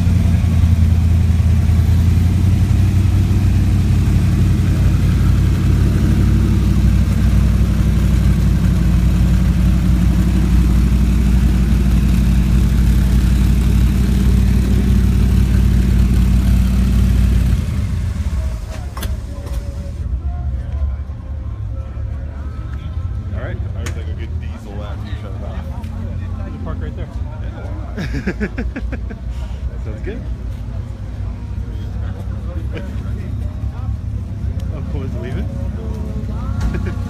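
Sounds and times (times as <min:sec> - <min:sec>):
car engine idling: 0:00.0 - 0:20.2.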